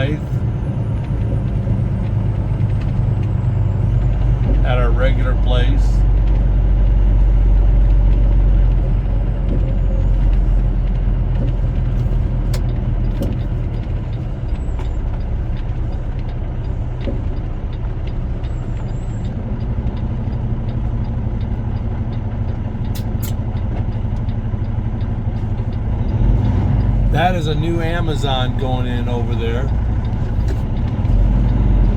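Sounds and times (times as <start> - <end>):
truck engine droning: 0.0 - 31.9.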